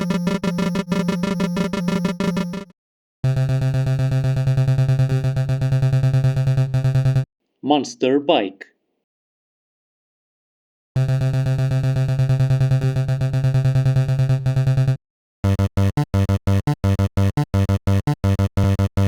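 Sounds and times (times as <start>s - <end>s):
eight-bit buzzing tone: 0.0s - 2.7s.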